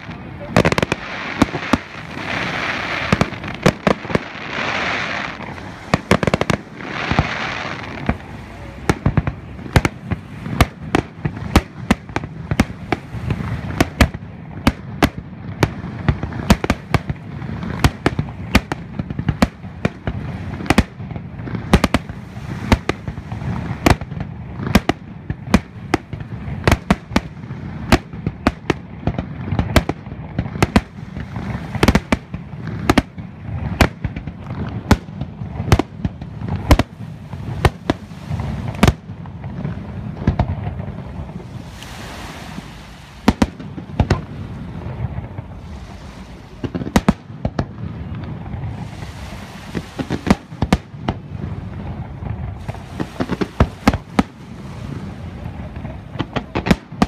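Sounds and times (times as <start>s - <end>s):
continuous low rumble: 0.0s - 57.0s.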